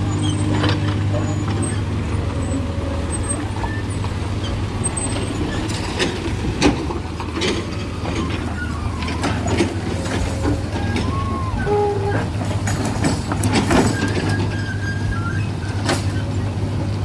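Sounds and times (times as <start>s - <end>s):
diesel engine humming: 0.0s - 17.0s
metallic clanks and knocks: 4.0s - 14.9s.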